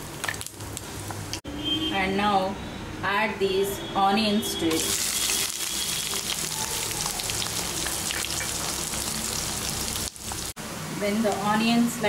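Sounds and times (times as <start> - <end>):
onions sizzling in hot oil: 0.0 - 1.2, 4.7 - 12.0.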